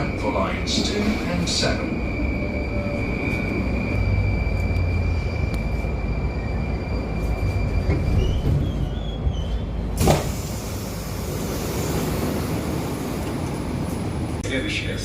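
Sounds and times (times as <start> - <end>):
train equipment rumble and hum: 0.0 - 15.0
sliding doors slamming shut: 10.0 - 13.6.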